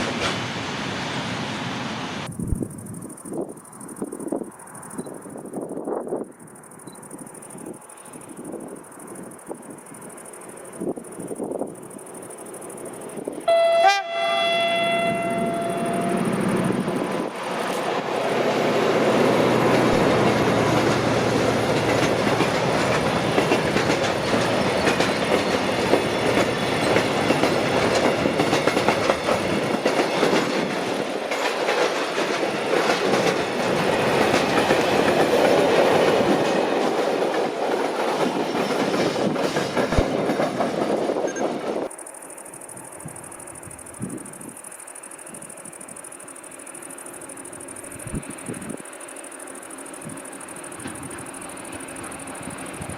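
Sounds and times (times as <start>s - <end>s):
train wheels rumbling on rails: 0.0s - 52.9s
train horn blast: 13.4s - 16.6s.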